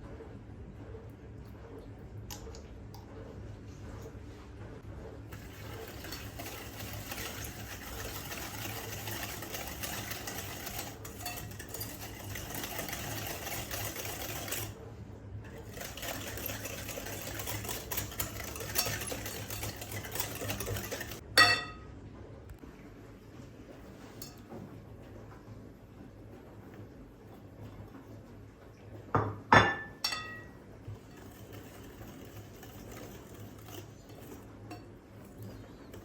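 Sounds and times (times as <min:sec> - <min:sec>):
electric kitchen mixer running: 0:05.3 - 0:14.8, 0:15.5 - 0:21.2, 0:31.0 - 0:34.5.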